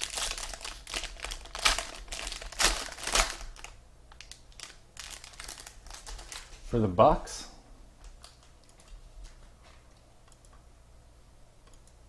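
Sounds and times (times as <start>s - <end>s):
plastic wrapping crinkling: 0.0s - 6.6s.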